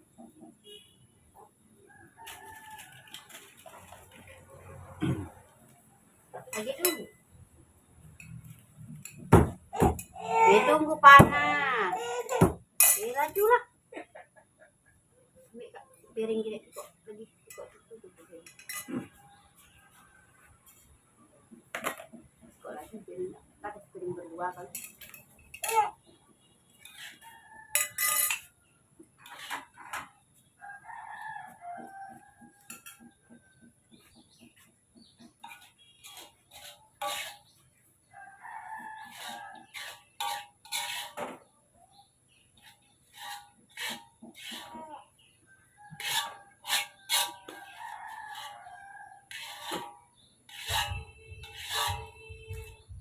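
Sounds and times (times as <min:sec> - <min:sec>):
plates and cutlery clattering: 0:18.4 - 0:19.2, 0:24.7 - 0:26.0, 0:27.8 - 0:28.5
rooster crowing: 0:45.9 - 0:49.4.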